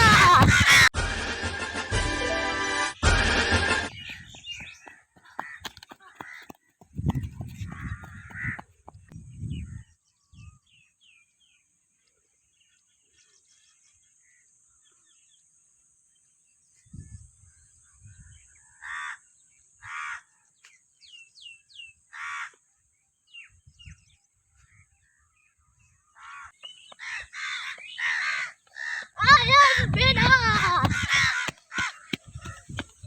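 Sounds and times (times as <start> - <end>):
small birds chirping: 3.8 - 11.3, 24.7 - 33.0
crows cawing: 4.9 - 6.6, 7.6 - 8.6, 18.8 - 19.2, 19.8 - 20.3, 22.1 - 22.6, 26.2 - 32.8.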